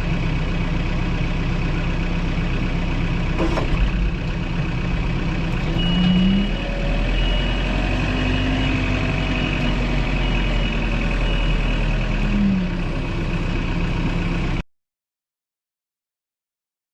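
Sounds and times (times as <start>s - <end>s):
heavy machine engine revving: 3.2s - 14.6s
backup alarm beeping: 5.7s - 11.8s.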